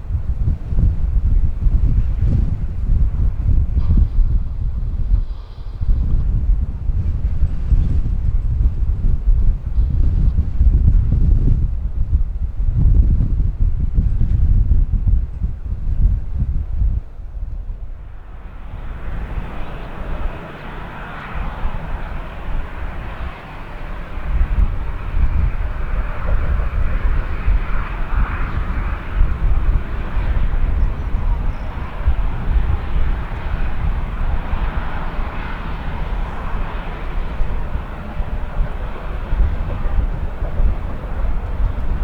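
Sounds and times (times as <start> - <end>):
wind rumble on microphone: 0.0 - 42.0
jet engines whining: 17.8 - 42.0.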